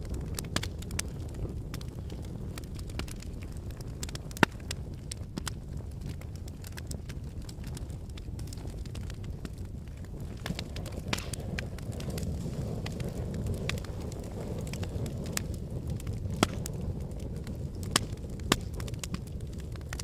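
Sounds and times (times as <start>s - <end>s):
fire crackling: 0.0s - 20.0s
fire rumbling: 0.0s - 20.0s
sharp wood pops: 10.4s - 11.7s, 16.3s - 16.7s.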